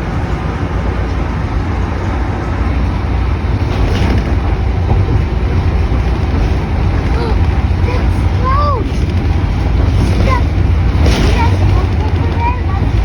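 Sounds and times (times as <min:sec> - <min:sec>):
vehicle interior road rumble: 0:00.0 - 0:13.0.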